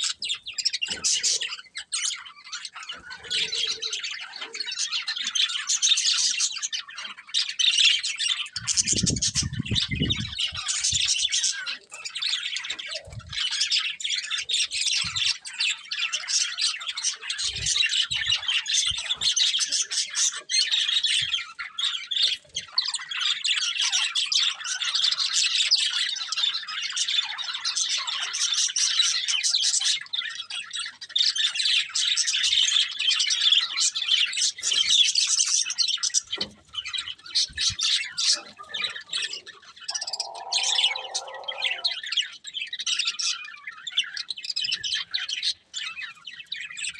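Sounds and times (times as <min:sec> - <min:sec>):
budgerigars chirping: 0:00.0 - 0:46.9
harsh bird call: 0:37.4 - 0:42.4.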